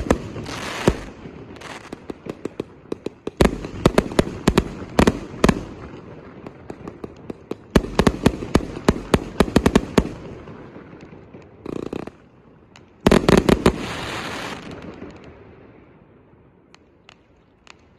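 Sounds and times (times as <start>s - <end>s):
firework hissing tail: 0.0s - 1.9s, 13.2s - 14.8s.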